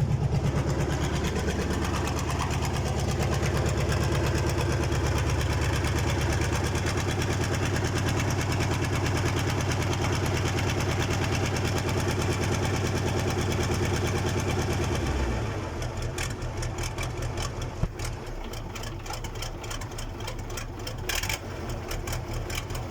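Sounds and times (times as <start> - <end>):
diesel engine clattering: 0.0 - 22.9.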